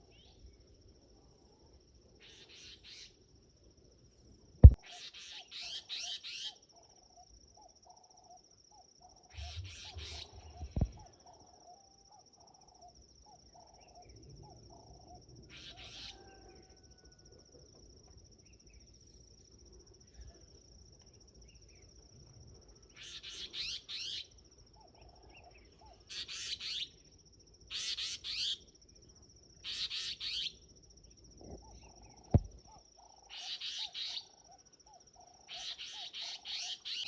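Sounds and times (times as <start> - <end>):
high insect trill: 0.0 - 37.0
bird chirping: 4.6 - 16.2, 29.6 - 37.0.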